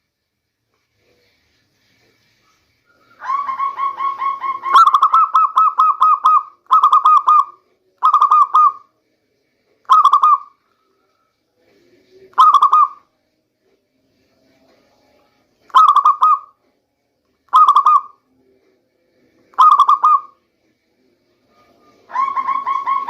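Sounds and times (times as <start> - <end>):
dove cooing: 3.0 - 8.9, 9.9 - 10.6, 12.4 - 13.0, 15.7 - 16.6, 17.5 - 18.2, 19.6 - 20.4, 22.1 - 23.0.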